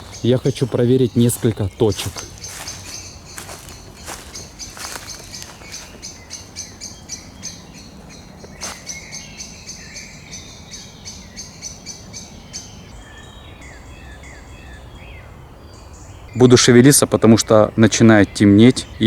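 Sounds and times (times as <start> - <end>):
bird high ticking notes: 0.0 - 12.8.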